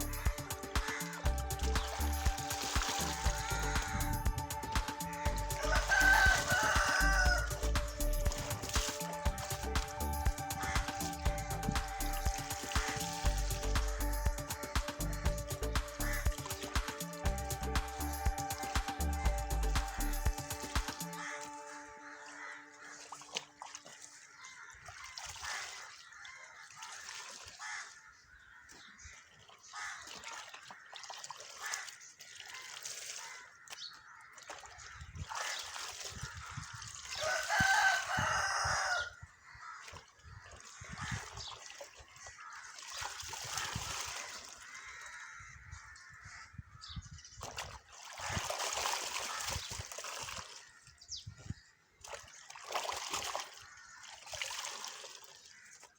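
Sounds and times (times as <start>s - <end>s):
clothes sloshing in water: 0.0s - 45.4s, 47.2s - 55.9s
rooster crowing: 5.0s - 7.8s, 37.2s - 39.2s.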